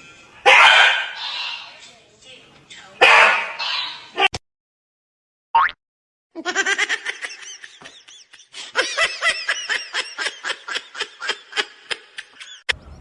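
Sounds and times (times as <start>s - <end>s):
person laughing hard: 6.4s - 12.7s.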